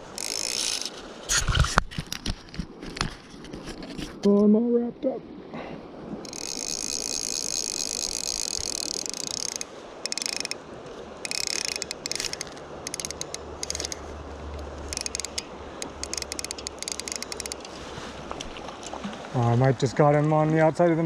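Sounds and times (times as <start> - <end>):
fishing reel drag ratcheting: 0.0 - 1.0, 6.2 - 10.6, 11.2 - 14.1, 14.8 - 17.8
river water hissing: 0.0 - 1.8, 4.8 - 21.0.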